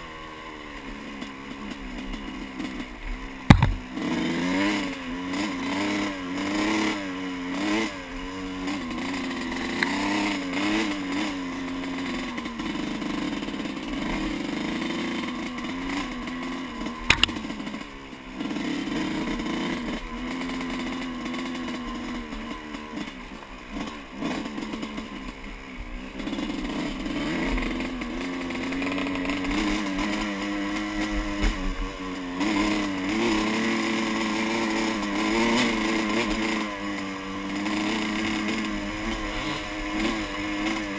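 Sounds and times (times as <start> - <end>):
dirt bike engine revving: 0.0 - 40.9
sharp knock: 3.5 - 3.8, 17.1 - 17.4.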